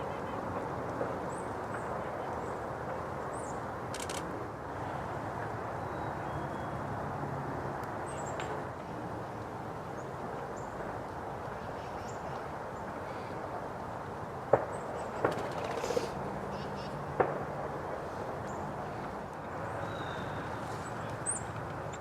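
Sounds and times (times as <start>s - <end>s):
outdoor background noise: 0.0s - 22.0s
sharp clicks: 3.9s - 4.3s.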